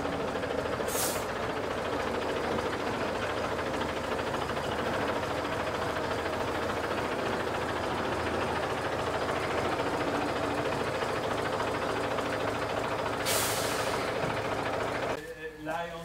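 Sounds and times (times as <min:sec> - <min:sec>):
truck engine running: 0:00.0 - 0:16.0
hiss of air: 0:00.8 - 0:01.3, 0:13.2 - 0:14.1.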